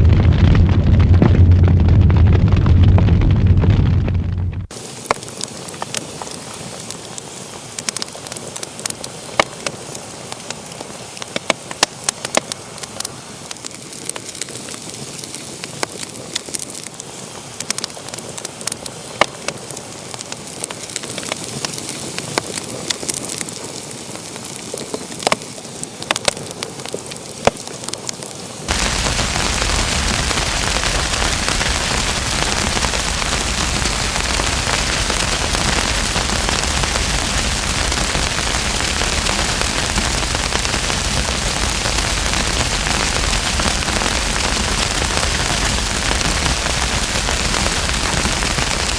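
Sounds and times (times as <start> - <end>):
steady rushing noise: 0.0 - 5.0, 28.7 - 48.9
wood fire crackling: 0.0 - 48.9.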